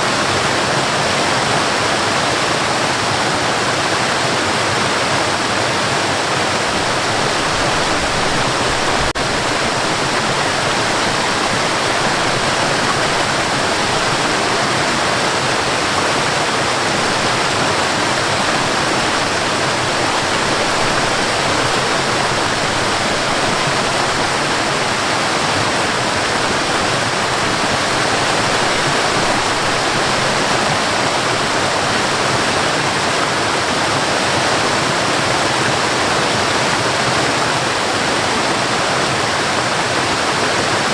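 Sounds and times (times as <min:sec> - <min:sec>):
waterfall roaring: 0:00.0 - 0:40.9.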